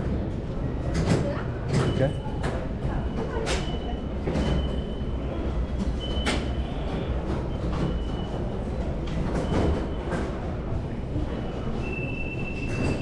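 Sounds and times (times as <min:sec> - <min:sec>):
tram rumbling on rails: 0:00.0 - 0:13.0.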